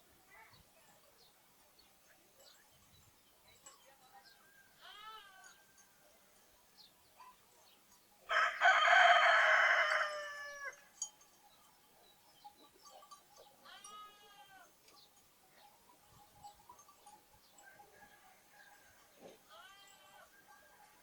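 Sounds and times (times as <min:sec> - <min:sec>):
small birds chirping: 0:00.0 - 0:08.3, 0:10.8 - 0:21.0
rooster crowing: 0:08.3 - 0:10.8, 0:17.6 - 0:19.1
lamb bleating: 0:13.6 - 0:14.7, 0:19.5 - 0:20.3.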